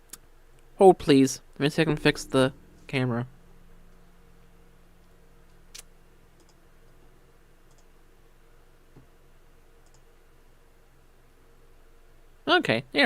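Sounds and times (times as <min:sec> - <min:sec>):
low electrical hum: 0:00.0 - 0:13.0
computer mouse clicks: 0:05.7 - 0:07.0, 0:07.7 - 0:07.9, 0:09.8 - 0:10.1.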